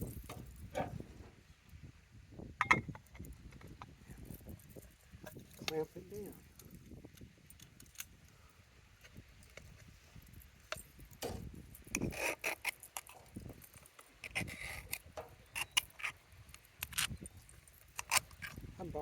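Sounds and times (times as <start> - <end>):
pie iron scraping and clicking: 10.7 - 18.7.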